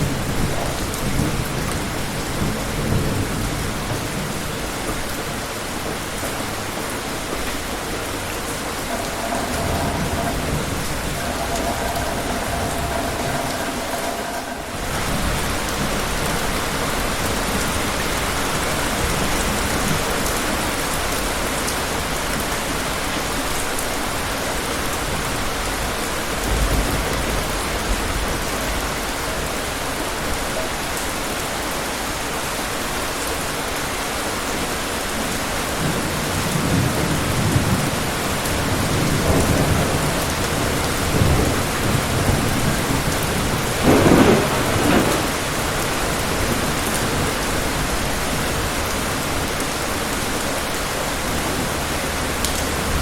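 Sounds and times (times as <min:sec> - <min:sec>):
distant thunder rumbling: 0:00.0 - 0:18.0, 0:36.4 - 0:48.8
rain hissing: 0:00.0 - 0:53.0.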